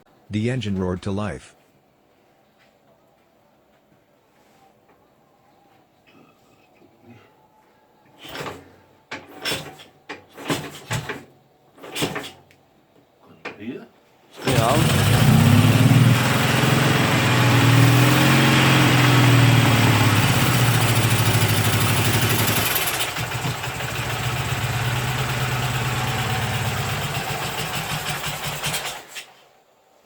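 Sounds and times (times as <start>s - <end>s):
motorcycle engine running: 14.5s - 29.0s.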